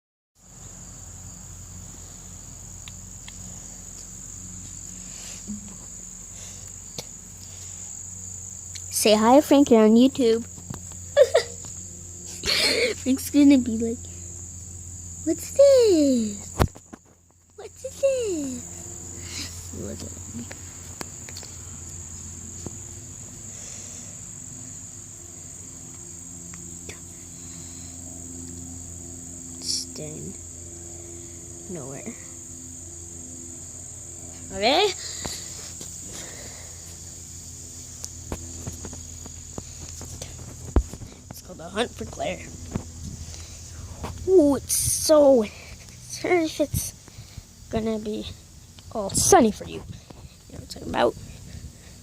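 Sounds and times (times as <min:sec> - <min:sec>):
insects trilling: 0:00.4 - 0:52.0
low steady hum: 0:00.5 - 0:16.7.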